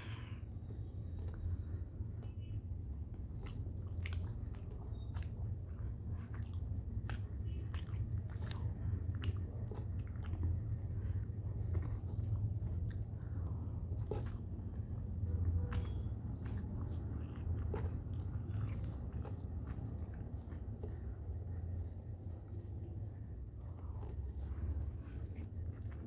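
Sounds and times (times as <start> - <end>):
person chewing food: 0.0 - 26.0.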